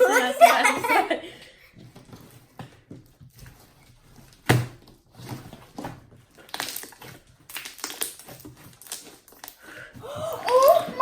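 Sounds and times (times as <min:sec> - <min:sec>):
slime squishing: 0:01.8 - 0:11.0
slime popping: 0:06.4 - 0:09.6.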